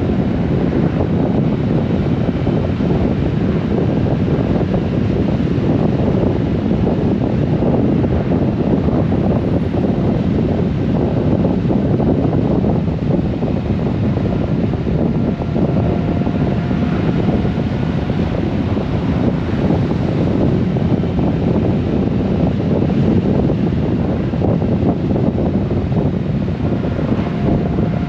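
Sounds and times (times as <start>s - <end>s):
road noise: 0.0s - 28.0s
wind rushing over microphone: 0.0s - 28.0s
motorcycle engine rumble: 7.4s - 28.0s.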